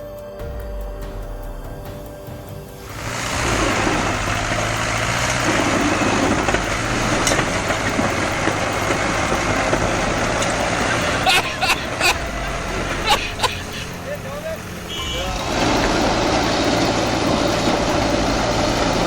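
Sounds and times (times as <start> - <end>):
tractor engines running hard: 1.6 - 19.0.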